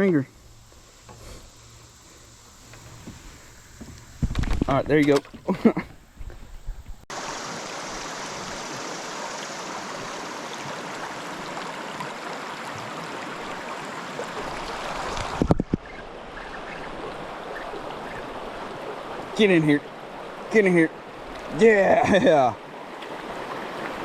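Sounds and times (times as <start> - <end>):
creek water rushing: 7.1 - 24.0.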